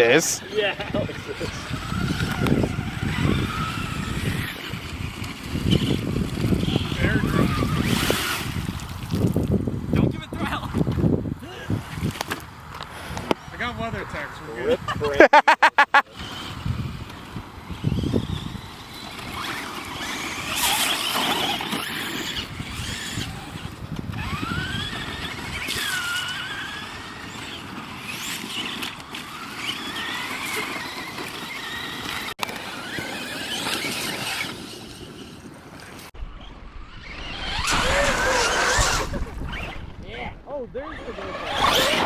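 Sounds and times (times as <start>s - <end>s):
rc car motors whining: 0.0s - 14.9s, 15.9s - 40.2s, 40.8s - 42.0s
steady rushing noise: 36.0s - 42.0s.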